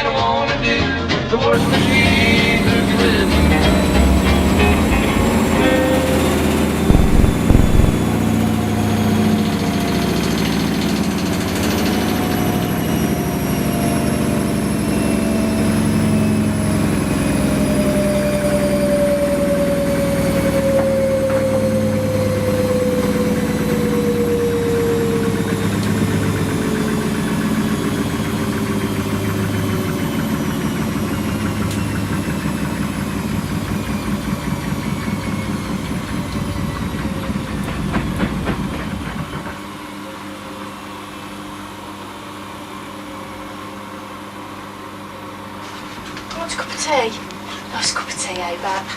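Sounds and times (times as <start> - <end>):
washing machine motor whine: 1.6 - 45.6
rapid rhythmic knocking: 6.9 - 8.1.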